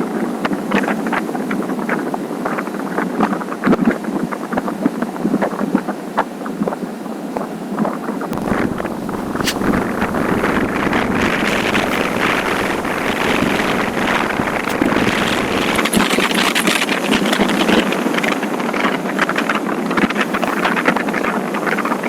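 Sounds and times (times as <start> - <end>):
wind rushing over microphone: 0.2 - 22.0.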